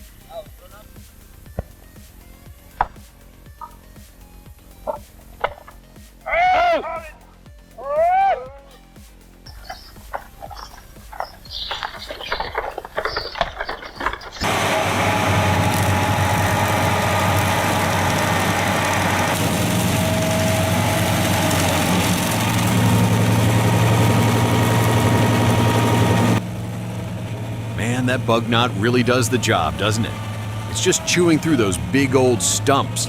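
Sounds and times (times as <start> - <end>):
engine running: 0.0 - 6.3, 9.2 - 33.0.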